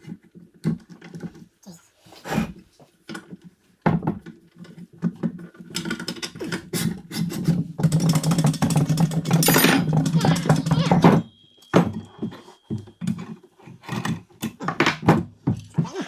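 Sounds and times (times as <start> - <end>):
parts clicking and knocking: 4.2 - 15.7
fast mechanical rattling: 7.8 - 10.8.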